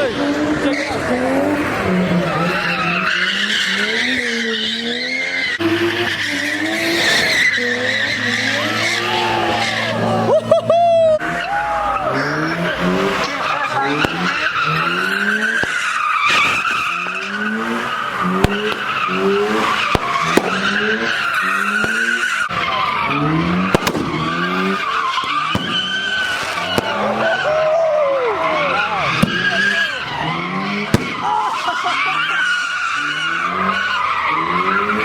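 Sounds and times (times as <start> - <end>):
car engine revving: 0.0 - 35.0
tires squealing: 0.0 - 35.0
sharp cracks: 12.2 - 27.7, 28.4 - 35.0.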